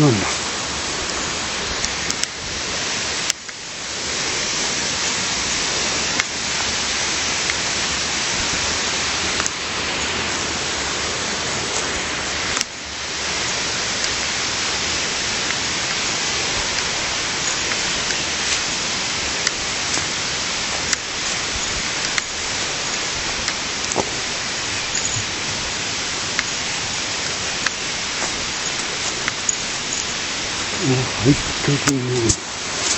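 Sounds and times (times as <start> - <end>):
rushing water: 0.0 - 32.9
sharp clicks: 1.8 - 2.4.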